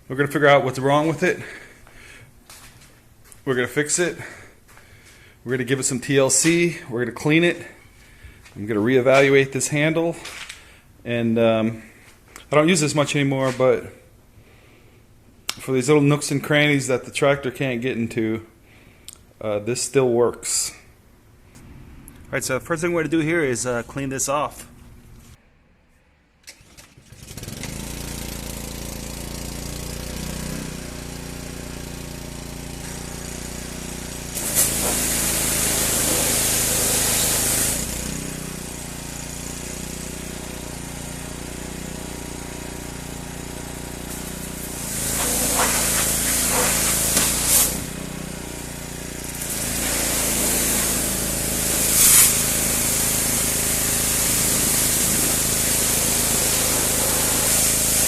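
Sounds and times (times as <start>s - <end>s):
motor running: 27.1s - 58.0s
nozzle spraying with loud hissing: 34.3s - 38.1s, 44.0s - 48.2s, 49.3s - 58.0s.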